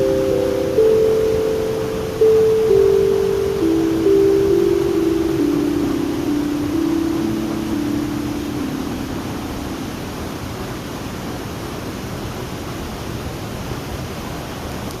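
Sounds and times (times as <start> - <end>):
low held tone: 0.0 - 11.0
waterfall rushing: 0.0 - 14.9.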